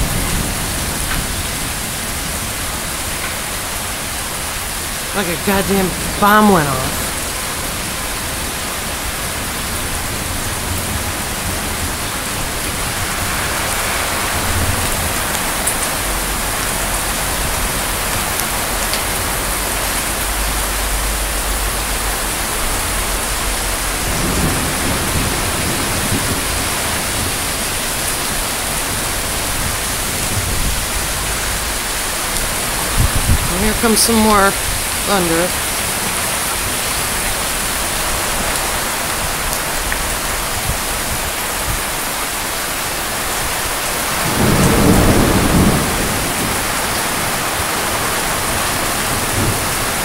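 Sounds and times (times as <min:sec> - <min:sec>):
heavy rain pouring: 0:00.0 - 0:50.0
low rumble of thunder: 0:23.3 - 0:27.4, 0:44.2 - 0:47.6.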